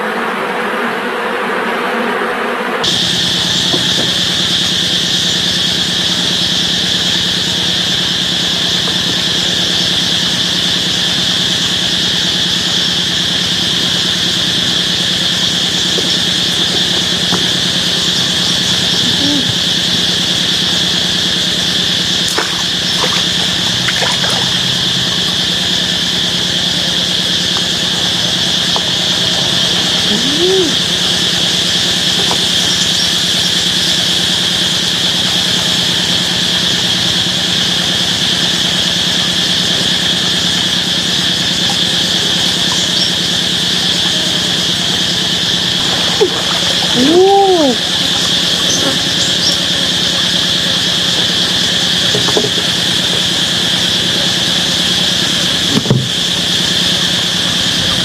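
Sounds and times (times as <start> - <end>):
insect drone: 0.0 - 58.0
rising and falling call: 29.0 - 31.2.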